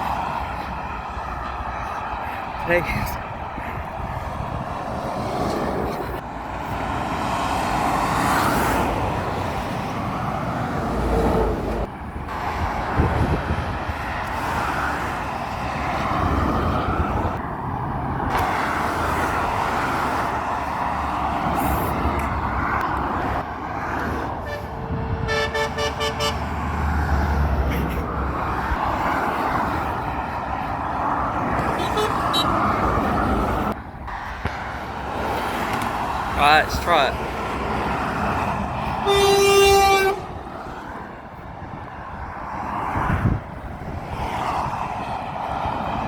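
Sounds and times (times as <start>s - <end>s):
road traffic passing: 0.0s - 46.0s
vehicle horn short blasts: 25.3s - 26.4s, 31.8s - 32.5s, 39.0s - 40.3s.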